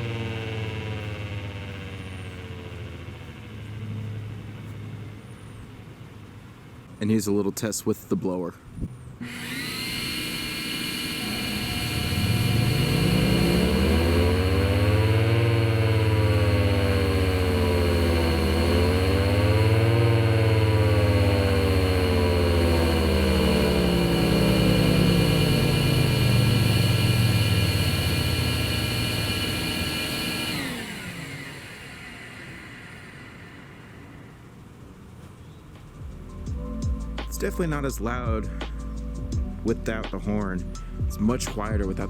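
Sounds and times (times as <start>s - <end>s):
siren rotor tone winding: 0.0s - 7.0s, 9.2s - 35.1s
high blower whine: 0.0s - 7.4s, 8.7s - 42.0s.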